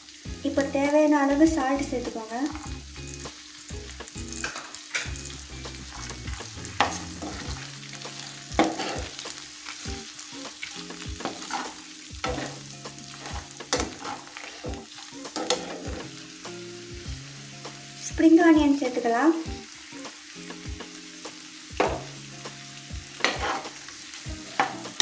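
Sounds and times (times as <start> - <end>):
food sizzling in hot oil: 0.0 - 25.0
spatula scraping a pan: 5.7 - 9.3, 10.5 - 16.2, 23.2 - 23.8.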